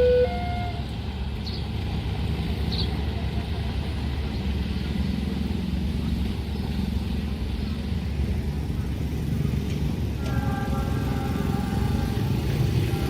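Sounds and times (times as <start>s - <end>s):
train rumbling over crossing: 0.0s - 13.0s.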